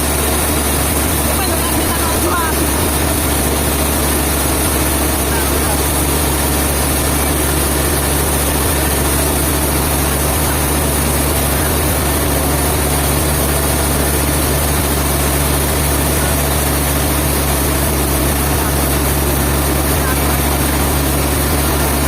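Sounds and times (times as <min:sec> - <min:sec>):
heavy engine running: 0:00.0 - 0:22.0.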